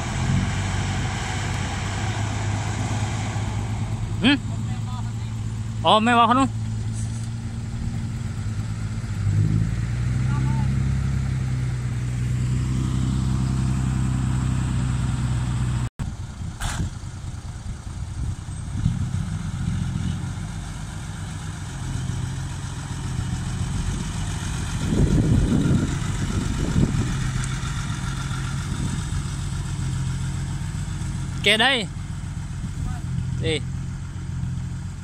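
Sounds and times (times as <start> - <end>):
diesel engines of earthmoving machinery: 0.0 - 35.0.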